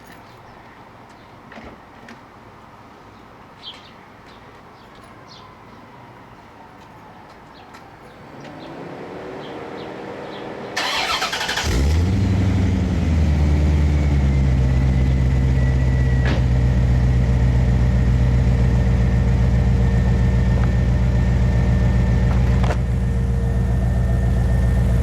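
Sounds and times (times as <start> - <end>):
car engine idling loudly: 10.8 - 25.0
rising whine: 12.0 - 25.0.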